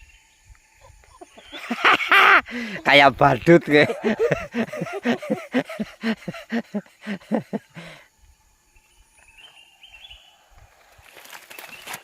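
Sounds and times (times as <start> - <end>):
man laughing: 0.8 - 8.0.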